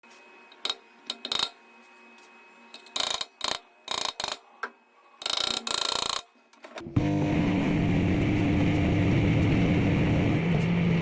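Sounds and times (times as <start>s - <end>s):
ratcheting clicks: 5.2s - 6.3s.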